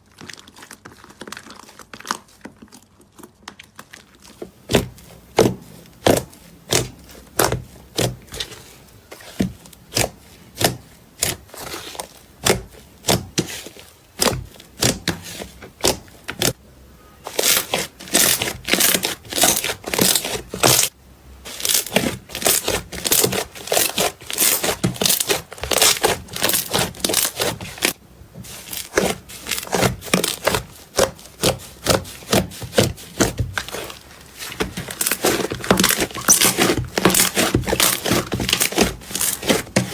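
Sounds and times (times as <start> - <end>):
slime popping and crackling: 0.0 - 8.6, 21.5 - 39.9.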